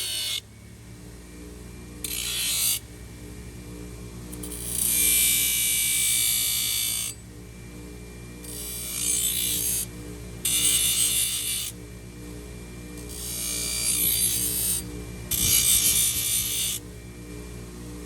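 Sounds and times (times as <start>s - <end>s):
steady low hum: 0.0s - 18.0s
hoof scraping with metal tool: 15.3s - 16.7s.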